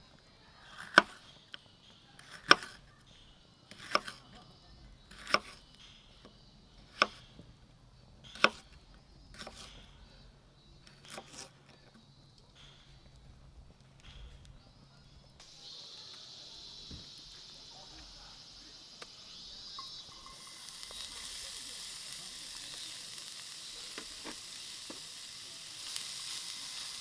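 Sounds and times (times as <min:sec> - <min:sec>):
knife chopping on cutting board: 0:00.8 - 0:01.2, 0:02.2 - 0:02.8, 0:03.8 - 0:04.2, 0:05.1 - 0:05.6, 0:06.9 - 0:07.2, 0:08.4 - 0:08.6.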